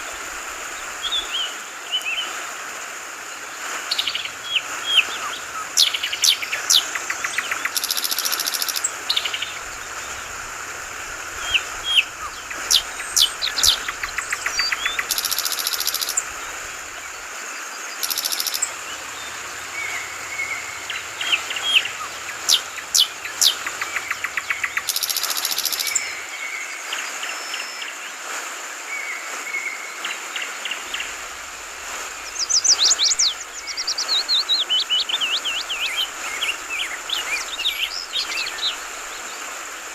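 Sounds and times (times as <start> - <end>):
flowing water babbling: 0.0 - 39.9
bird chirps and trills: 3.9 - 10.5, 11.3 - 17.2, 18.0 - 26.3, 32.2 - 38.9.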